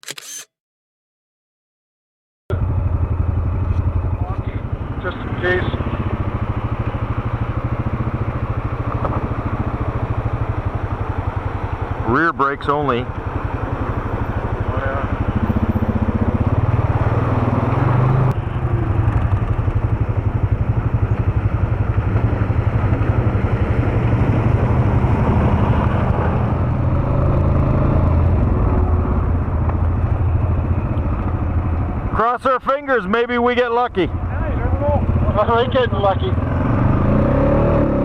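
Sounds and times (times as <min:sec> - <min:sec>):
atv engine running: 0:02.5 - 0:38.0.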